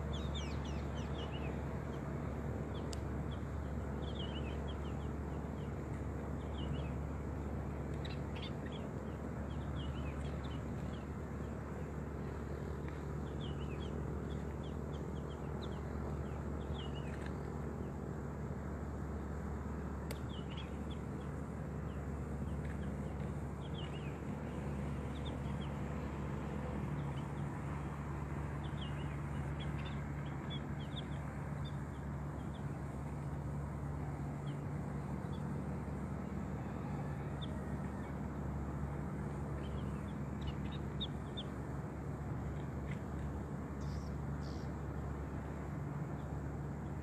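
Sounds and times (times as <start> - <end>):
small birds chirping: 0.0 - 18.0, 20.0 - 33.5, 39.2 - 41.6, 43.8 - 44.8
low background hum: 0.0 - 47.0.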